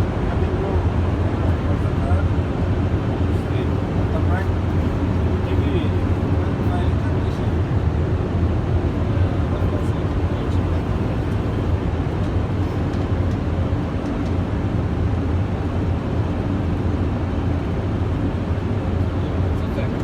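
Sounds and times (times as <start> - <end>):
cockpit low drone: 9.0 - 18.2.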